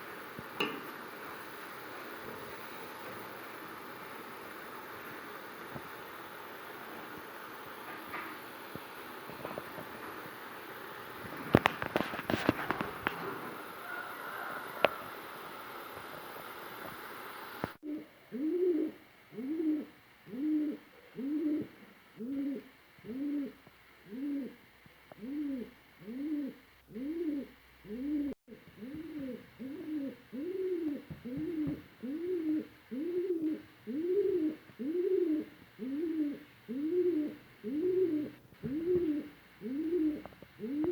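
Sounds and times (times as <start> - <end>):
steady hiss: 0.0 - 40.9
low cooing: 12.0 - 15.2, 17.8 - 24.6, 25.2 - 40.9.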